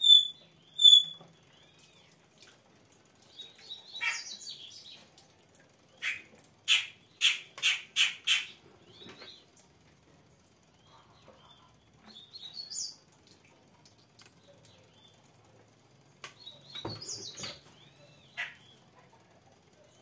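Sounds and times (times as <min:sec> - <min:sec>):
bird calling: 0:00.0 - 0:01.9, 0:03.7 - 0:04.8, 0:06.0 - 0:09.4, 0:16.4 - 0:18.9.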